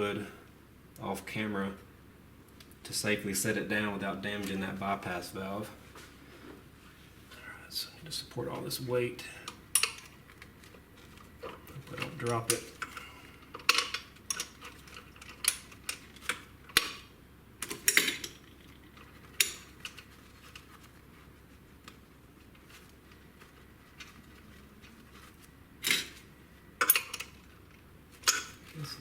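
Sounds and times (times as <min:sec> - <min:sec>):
metal tools clinking on engine: 0:26.8 - 0:27.4, 0:28.3 - 0:28.6.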